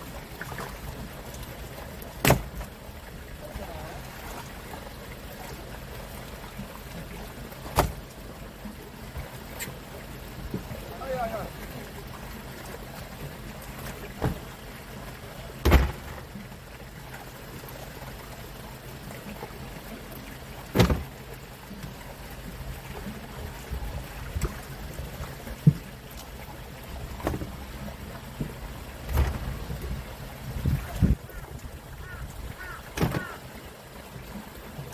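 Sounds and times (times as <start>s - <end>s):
boat engine humming: 0.0s - 34.9s
sharp knocks: 7.8s - 8.0s, 15.6s - 16.2s.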